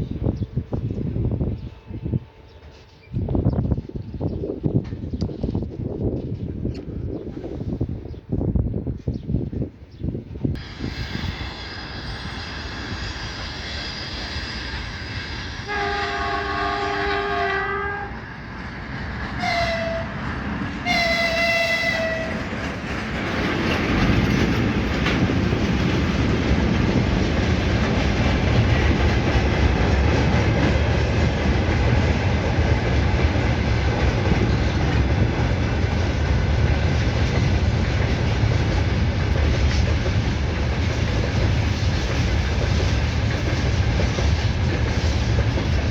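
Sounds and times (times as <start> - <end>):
train wheels rumbling on rails: 0.0 - 45.9
train horn blasts: 15.5 - 18.2, 19.4 - 22.5.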